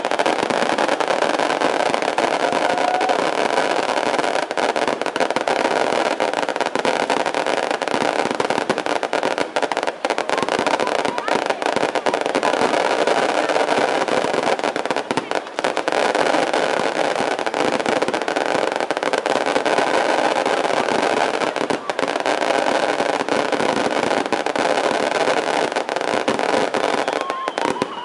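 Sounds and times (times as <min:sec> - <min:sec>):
fireworks crackling and popping: 0:00.0 - 0:28.0.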